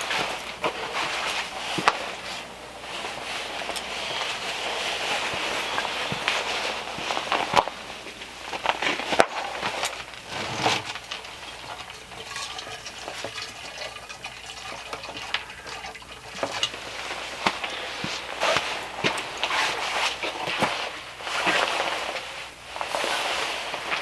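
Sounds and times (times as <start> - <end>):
kettle and jug clinking: 0.0 - 21.9
water pouring into jug: 9.8 - 17.4.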